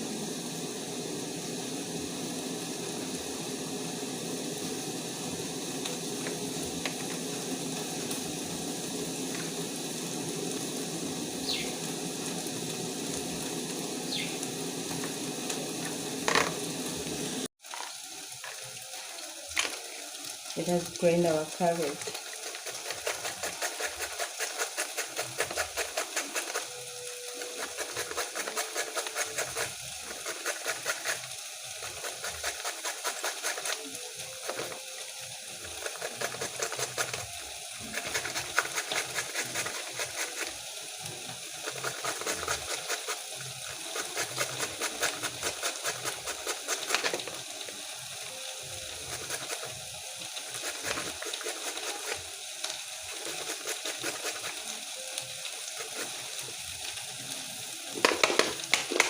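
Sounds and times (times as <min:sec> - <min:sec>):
carrot grated on a grater: 0:22.3 - 0:34.8, 0:35.6 - 0:40.6, 0:41.6 - 0:47.2, 0:49.0 - 0:49.8, 0:50.4 - 0:52.2, 0:53.2 - 0:54.7.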